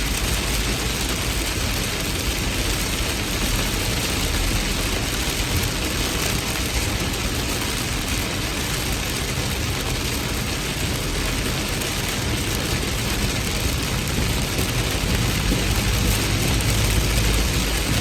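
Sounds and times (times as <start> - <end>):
heavy rain hissing: 0.0 - 18.0
low rumble: 13.6 - 18.0.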